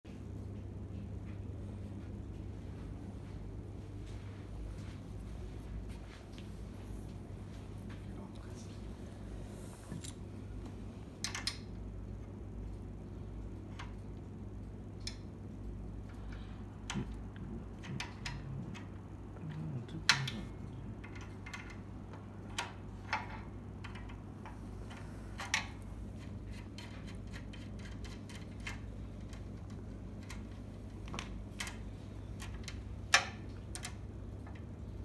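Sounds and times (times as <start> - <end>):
steady low hum: 0.1 - 35.0
clicks and knocks of tools: 20.0 - 34.7.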